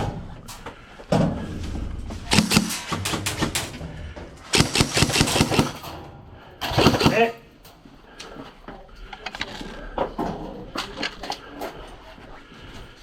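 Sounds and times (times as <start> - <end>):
airsoft gun full-auto bursts: 2.3 - 3.6, 4.5 - 5.8, 6.7 - 7.3.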